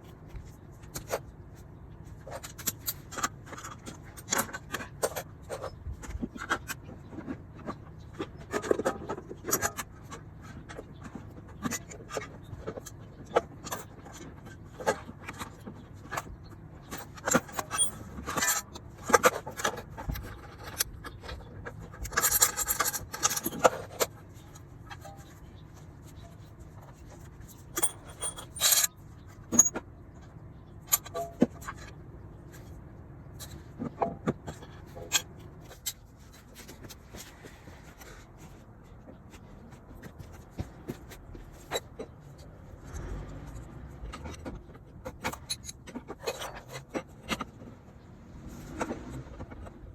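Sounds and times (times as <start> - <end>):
tools clicking and clinking: 16.8 - 25.4, 26.1 - 29.8, 30.8 - 32.0, 43.5 - 47.6
metal scraping: 21.8 - 29.8
sharp metallic clatters: 27.4 - 29.8.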